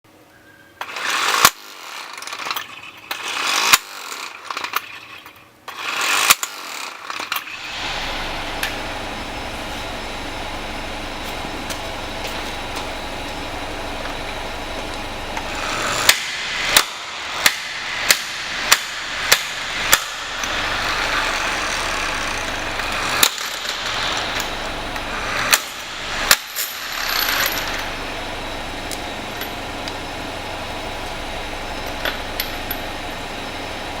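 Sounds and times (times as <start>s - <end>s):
impact wrench rattling: 14.8s - 28.0s
sharp metal clanks: 15.4s - 27.9s.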